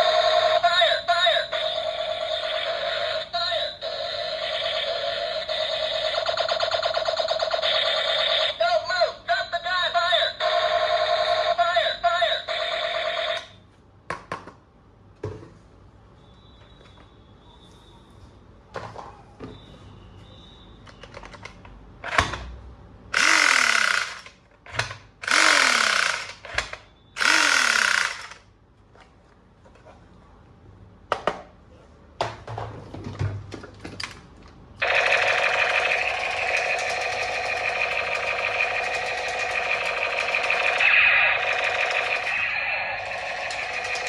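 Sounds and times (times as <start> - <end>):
electronic firing bursts: 1.6 - 8.6, 23.2 - 24.2, 25.2 - 26.4, 27.2 - 28.4, 34.8 - 44.0
plastic toy gun clicks: 23.2 - 28.4.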